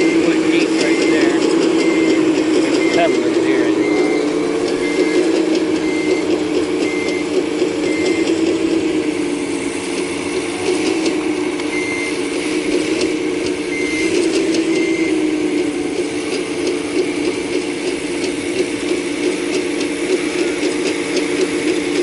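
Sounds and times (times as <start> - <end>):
travel alarm beeping: 0.0 - 17.5
excavator engine running: 0.0 - 22.0.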